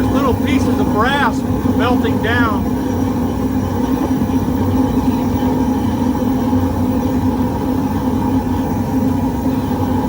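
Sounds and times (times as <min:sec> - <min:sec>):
propane burner roaring: 0:00.0 - 0:10.0.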